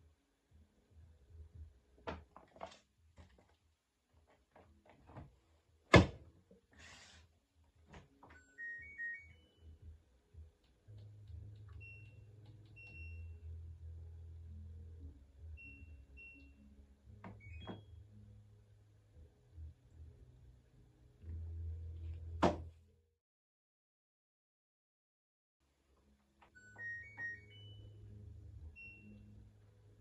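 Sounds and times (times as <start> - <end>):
washing machine door thunk: 5.9 - 6.2, 22.4 - 22.6.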